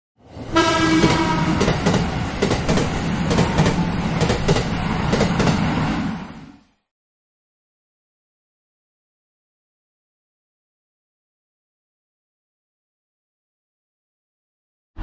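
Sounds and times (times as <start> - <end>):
train rumbling on rails: 0.2 - 6.8.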